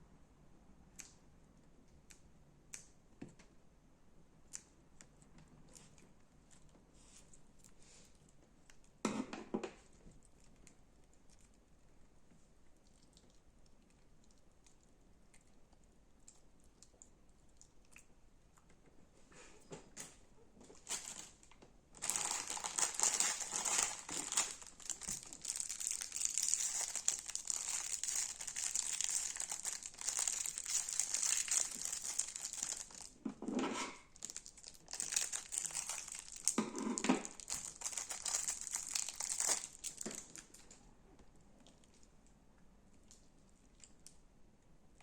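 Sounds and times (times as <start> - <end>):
soft slime squish: 0.2 - 9.0, 9.8 - 33.3, 34.0 - 45.0
crunchy slime crackling: 22.0 - 33.2, 34.0 - 40.6.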